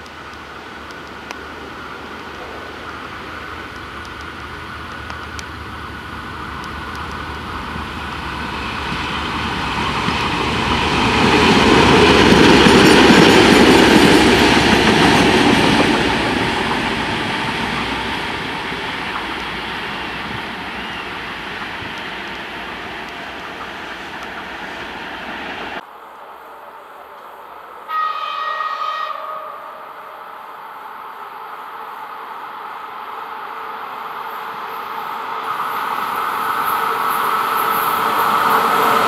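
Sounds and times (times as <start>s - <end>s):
train wheels rumbling on rails: 0.0s - 25.8s, 33.2s - 39.0s.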